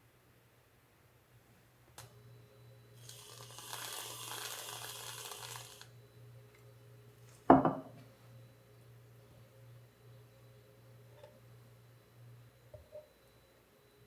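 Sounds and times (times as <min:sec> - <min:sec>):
sharp clunk with ring: 0:07.5 - 0:08.0.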